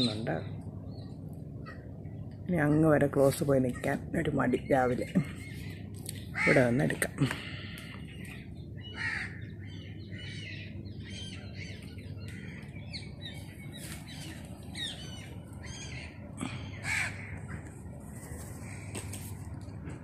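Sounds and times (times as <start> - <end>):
small birds chirping: 0.0 - 19.6
steady low hum: 0.0 - 20.0
crows cawing: 6.3 - 8.1, 8.8 - 10.5, 15.6 - 17.7.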